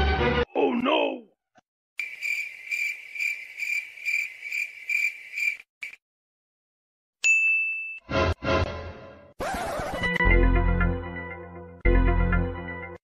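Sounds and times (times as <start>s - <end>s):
cricket-like chirping: 2.0s - 6.0s.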